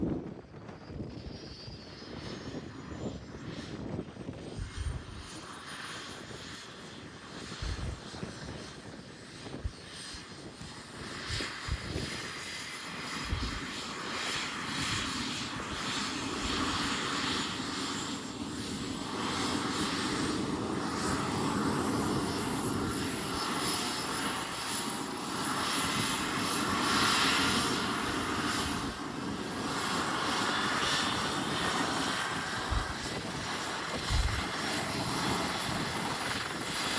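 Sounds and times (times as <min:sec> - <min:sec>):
helicopter engine starting up: 0:10.6 - 0:36.9.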